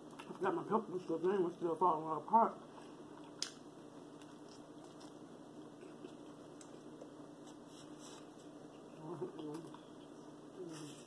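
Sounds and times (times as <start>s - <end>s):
faint chewing: 2.6s - 11.0s.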